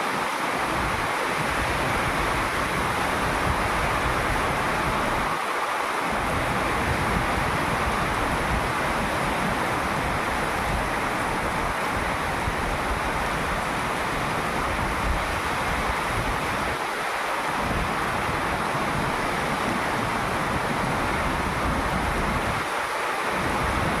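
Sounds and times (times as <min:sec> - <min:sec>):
heavy rain: 0:00.0 - 0:24.0
wind rumbling on microphone: 0:00.1 - 0:05.4, 0:06.0 - 0:24.0.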